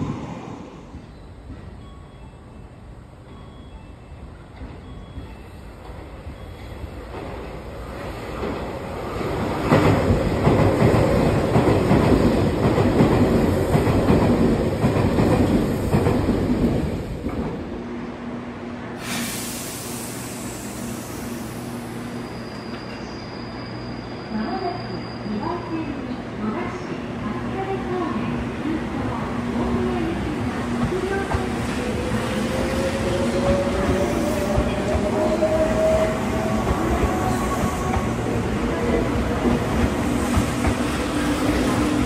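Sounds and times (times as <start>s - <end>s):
standing train low hum: 0.0s - 22.8s, 24.4s - 42.0s
train wheels clacking on rails: 9.6s - 17.6s, 30.8s - 42.0s.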